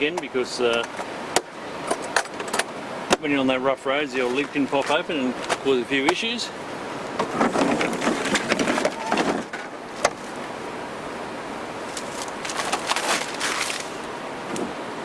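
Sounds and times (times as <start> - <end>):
steady outdoor hiss: 0.0 - 15.0
handling clatter and rustling: 7.2 - 10.3, 11.9 - 14.7.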